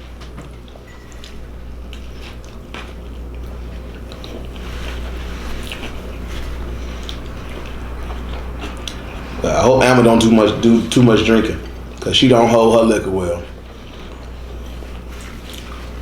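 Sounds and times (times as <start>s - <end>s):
steady low hum: 0.0s - 16.0s
person chewing food: 0.5s - 9.4s, 13.5s - 16.0s.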